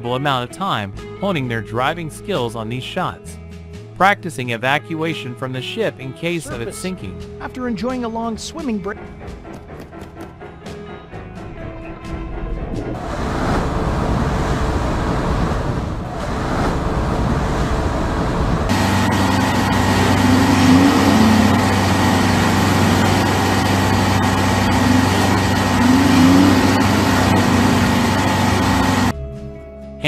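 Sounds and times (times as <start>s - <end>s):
rumbling rush of noise: 12.1s - 29.1s
boat engine humming: 13.0s - 29.1s.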